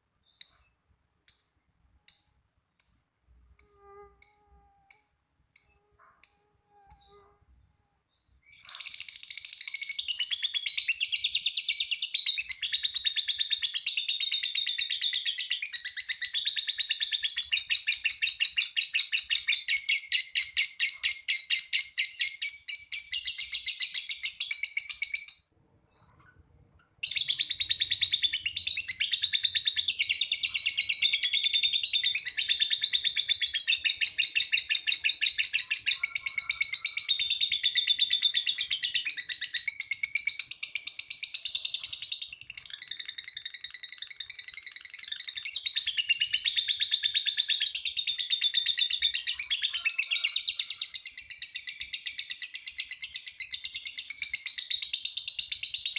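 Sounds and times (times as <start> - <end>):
lovebird chattering trill: 1.3 - 3.0, 3.6 - 7.2, 8.4 - 11.7
lovebird short chirps: 3.6 - 7.4, 8.2 - 10.2.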